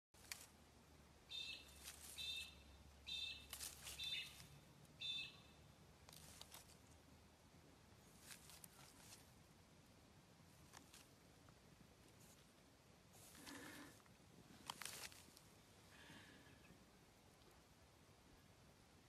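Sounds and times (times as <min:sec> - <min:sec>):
bird chirping: 0:01.3 - 0:05.8
faint rustles: 0:01.6 - 0:02.6, 0:03.4 - 0:04.7, 0:06.0 - 0:07.1, 0:07.9 - 0:09.7, 0:10.4 - 0:16.7.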